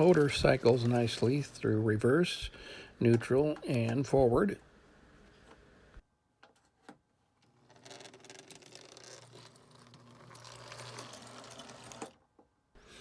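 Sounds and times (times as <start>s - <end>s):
toy train motor hum: 7.7s - 12.1s.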